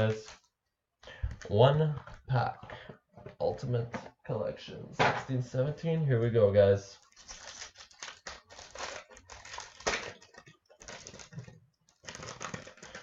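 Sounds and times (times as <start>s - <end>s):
card wrapper crinkling and tearing: 7.0s - 13.0s.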